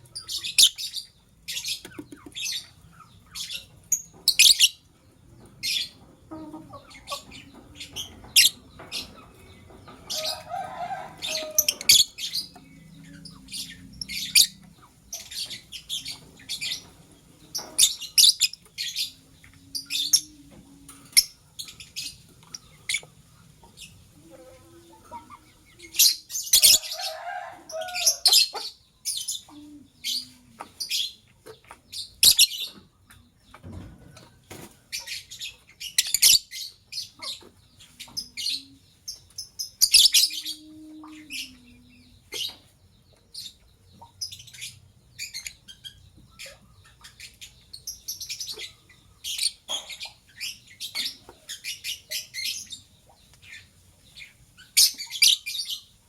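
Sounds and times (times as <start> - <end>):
harsh bird calls: 0.0 - 33.9
lovebirds chirping: 0.0 - 56.0.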